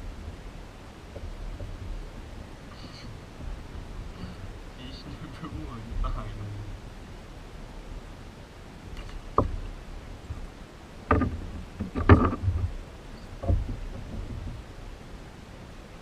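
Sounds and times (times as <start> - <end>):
steady hiss: 0.0 - 16.0
hollow knocks on kayak hull: 9.0 - 9.7, 11.0 - 12.8, 13.4 - 14.6.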